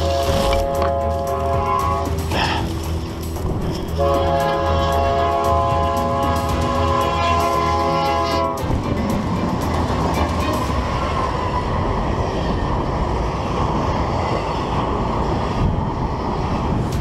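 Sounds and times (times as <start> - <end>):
locomotive air horn: 0.0 - 2.8, 3.7 - 8.7
steel wheels on rails: 0.0 - 17.0.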